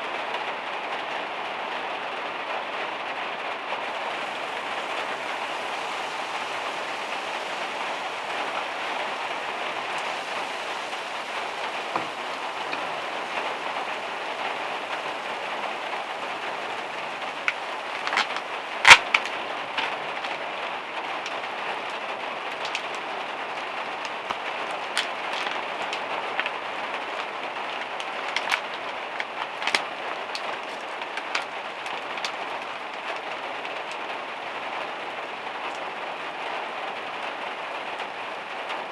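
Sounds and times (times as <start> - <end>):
rain on a metal roof: 0.0 - 38.9
sharp drip taps: 3.9 - 19.9.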